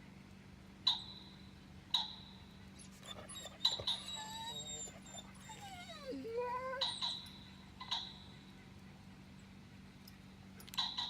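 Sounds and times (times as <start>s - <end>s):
dog whining: 2.8s - 7.3s.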